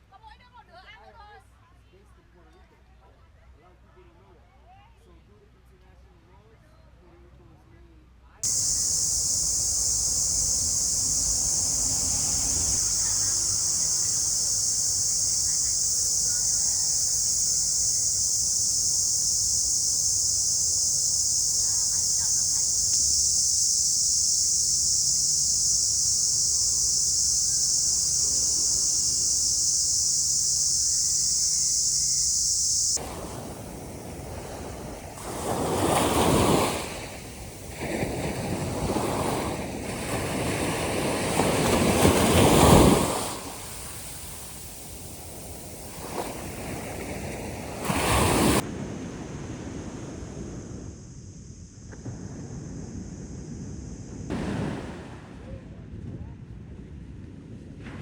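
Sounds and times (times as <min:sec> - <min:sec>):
high-pitched insect drone: 0:08.4 - 0:48.6
waves breaking on a shore: 0:08.4 - 0:51.0, 0:54.3 - 0:55.5.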